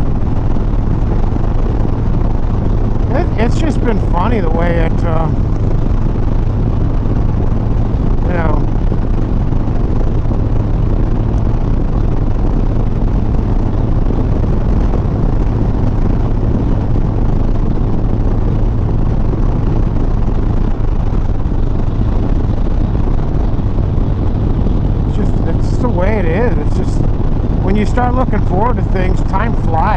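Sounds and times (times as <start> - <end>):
motorcycle engine running steadily: 0.0 - 29.9
wind and road noise: 0.0 - 29.9.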